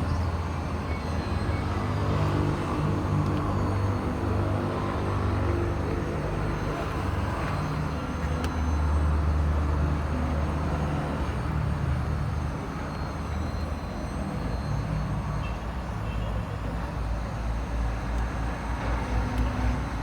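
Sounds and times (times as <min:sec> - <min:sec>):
click: 0:08.4 - 0:08.6.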